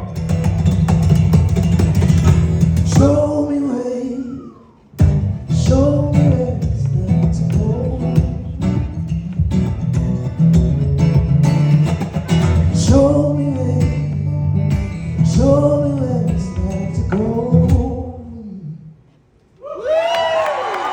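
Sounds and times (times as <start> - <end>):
strummed guitar: 0.0 - 3.5, 5.0 - 18.2.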